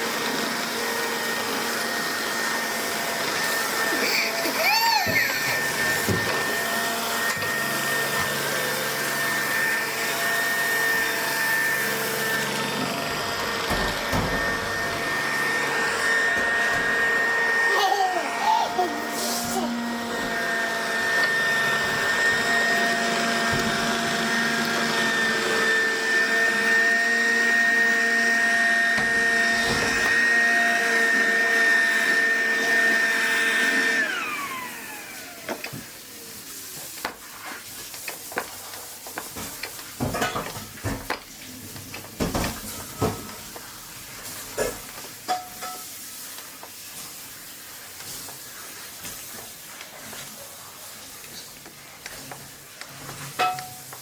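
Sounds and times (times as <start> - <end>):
robot vacuum cleaner whining: 0.0 - 38.4.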